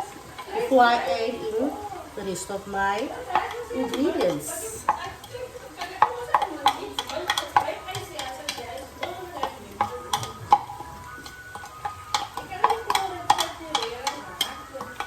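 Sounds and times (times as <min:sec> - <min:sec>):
onions frying in oil: 0:00.0 - 0:15.0
utensil scraping a pot: 0:00.0 - 0:15.0.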